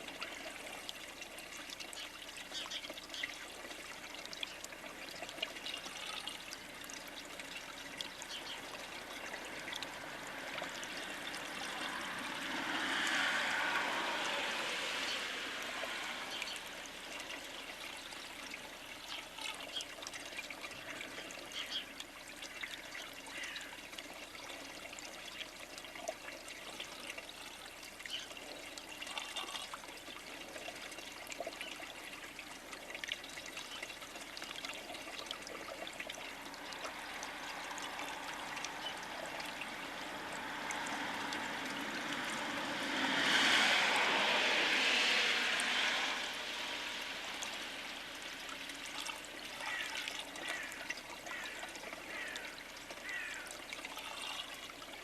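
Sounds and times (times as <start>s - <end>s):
outdoor rushing noise: 40.7s - 48.4s.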